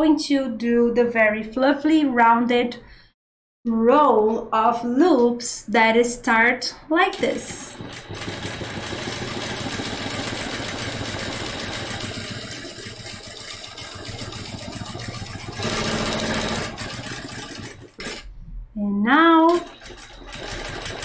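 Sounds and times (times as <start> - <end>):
sewing machine stitching: 7.2 - 18.3, 19.4 - 21.0.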